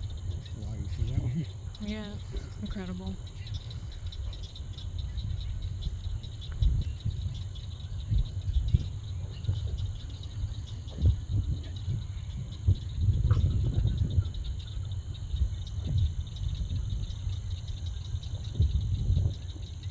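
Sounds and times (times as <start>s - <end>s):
crickets chirping: 0.0s - 19.9s.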